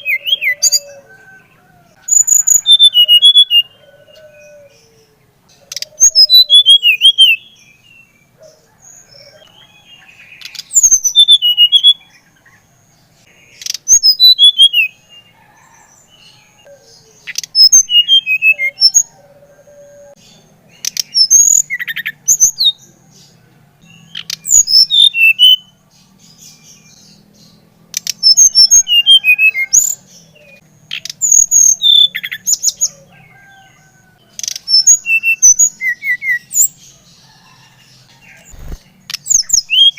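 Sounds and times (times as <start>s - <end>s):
songbird singing high whistles: 17.2s - 19.1s.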